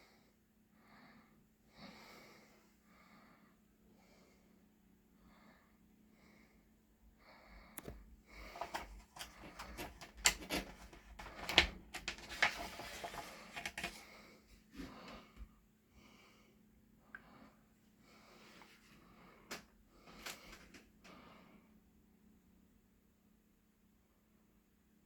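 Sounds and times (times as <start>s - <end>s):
book pages turning: 7.8s - 14.1s.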